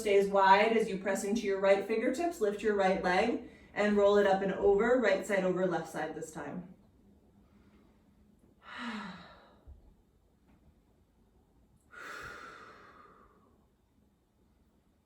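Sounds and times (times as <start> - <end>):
person sighing: 8.6 - 9.6
breathy exhale: 11.9 - 13.6.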